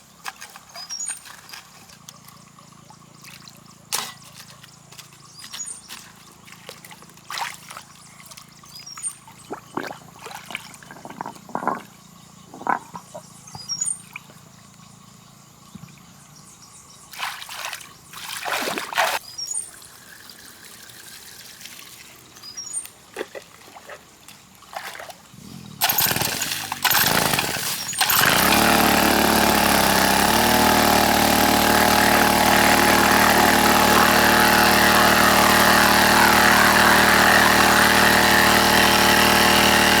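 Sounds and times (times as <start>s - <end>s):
water splashing and trickling: 0.0s - 13.3s, 17.1s - 29.4s
small engine running: 25.3s - 40.0s.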